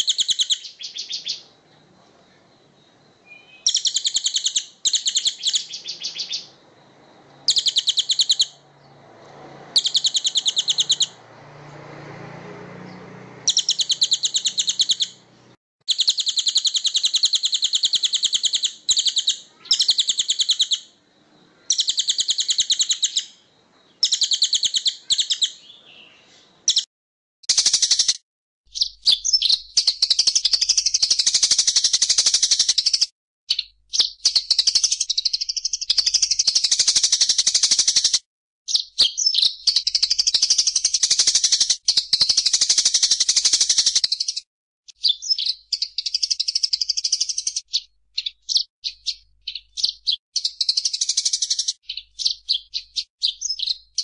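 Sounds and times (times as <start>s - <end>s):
songbird buzzy trills: 0.0s - 26.9s.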